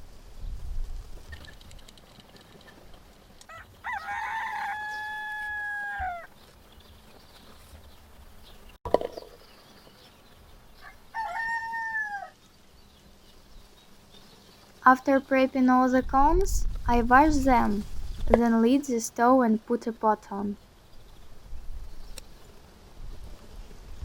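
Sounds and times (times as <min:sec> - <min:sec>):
rooster crowing: 0:03.5 - 0:06.3, 0:10.8 - 0:12.4.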